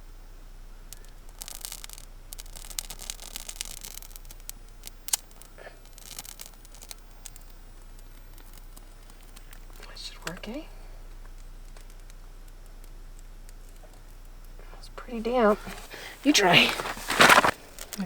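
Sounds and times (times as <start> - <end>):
bark tinder crackling and tearing: 0.8 - 10.6, 15.2 - 18.0.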